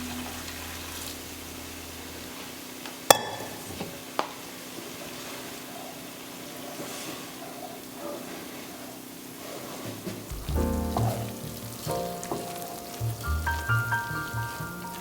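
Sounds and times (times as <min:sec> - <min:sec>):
faint frying sizzle: 0:00.0 - 0:15.0
utensil clinking on pot: 0:03.1 - 0:03.8.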